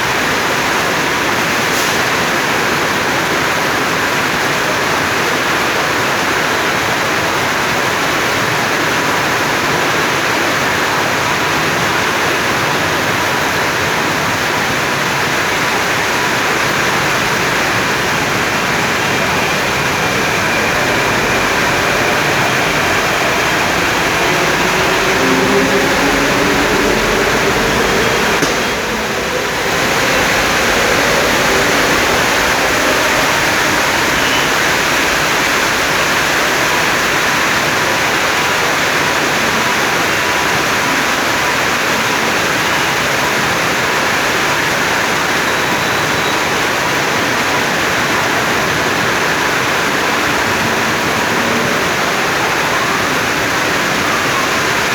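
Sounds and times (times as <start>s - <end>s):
heavy rain: 0.0s - 54.9s
faint rising hum: 16.6s - 36.4s.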